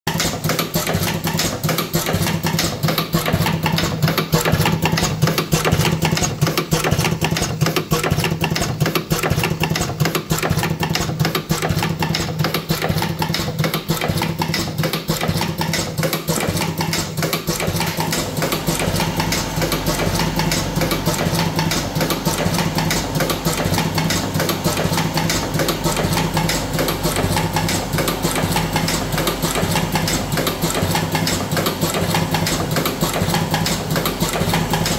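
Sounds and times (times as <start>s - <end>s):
machine motor hum: 0.1s - 34.9s
rapid mechanical clatter: 0.1s - 34.9s.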